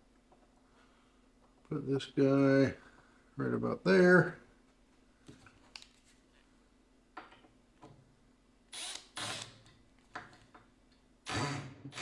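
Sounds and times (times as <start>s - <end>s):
power drill driving screw into wood: 8.7s - 9.6s, 11.3s - 12.0s.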